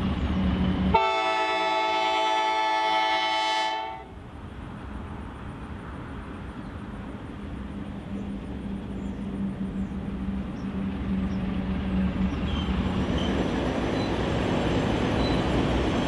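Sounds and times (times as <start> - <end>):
diesel locomotive engine drone: 0.0 - 16.0
wheels squealing: 10.6 - 16.0.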